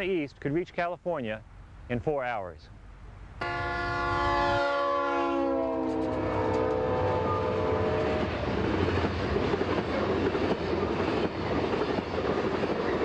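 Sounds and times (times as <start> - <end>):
train horn chord: 3.4 - 8.5.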